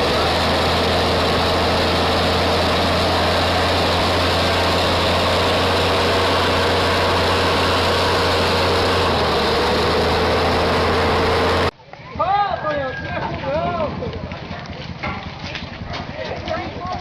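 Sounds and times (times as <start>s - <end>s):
heavy vehicle engine running: 0.0s - 11.8s.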